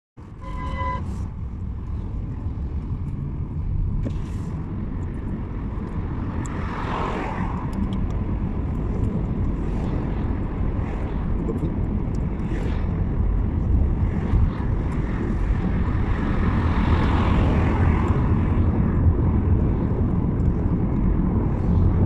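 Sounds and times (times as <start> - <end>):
car driving on road: 0.2 - 22.0.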